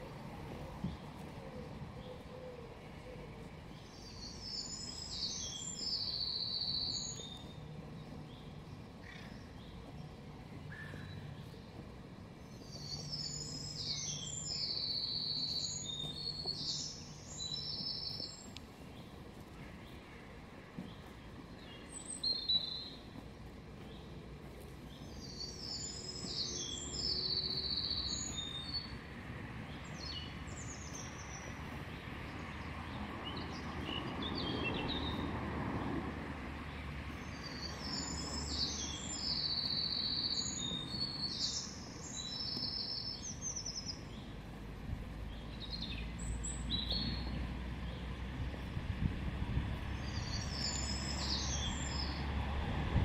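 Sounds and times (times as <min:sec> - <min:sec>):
small birds singing: 0:00.0 - 0:52.5.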